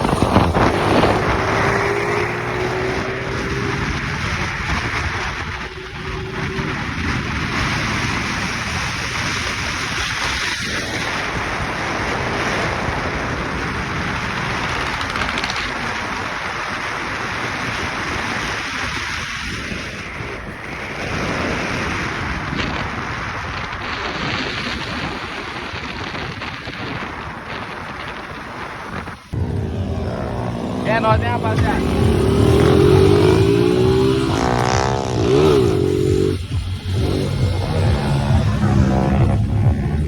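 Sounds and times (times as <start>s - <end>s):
motorcycle engine: 0.0s - 25.3s, 26.6s - 40.0s
wind buffeting microphone: 0.0s - 40.0s.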